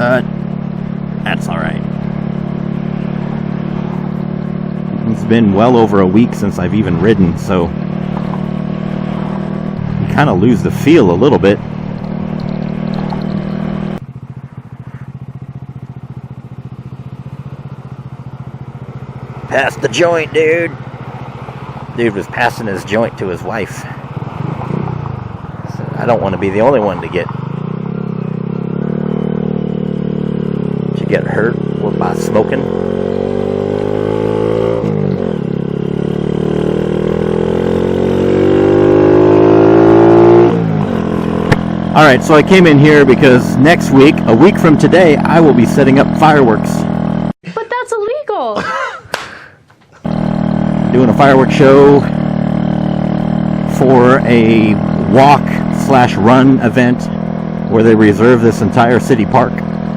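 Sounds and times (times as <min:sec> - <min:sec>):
motorcycle engine revving and idling: 0:00.0 - 0:47.4, 0:49.9 - 0:59.9.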